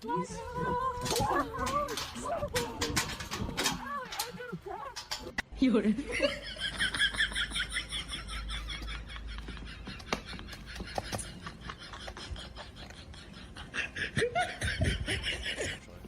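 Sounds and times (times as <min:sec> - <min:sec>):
high-pitched laughter: 0:06.1 - 0:16.0.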